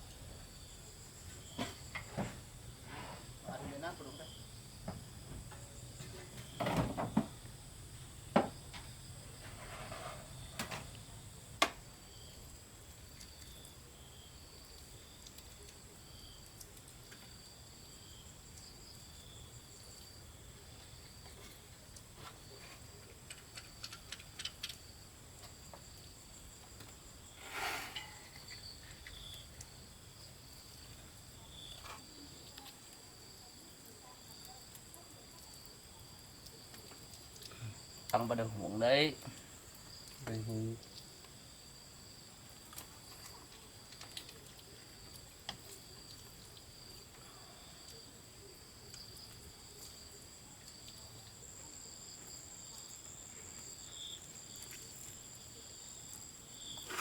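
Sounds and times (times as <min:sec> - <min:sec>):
insects chirping: 0:00.0 - 0:57.0
rustling: 0:56.7 - 0:57.0.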